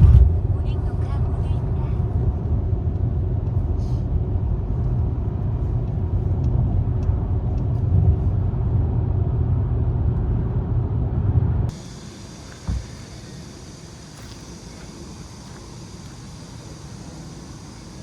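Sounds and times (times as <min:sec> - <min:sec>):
car engine and road rumble: 0:00.0 - 0:18.0
faint hum: 0:09.5 - 0:18.0.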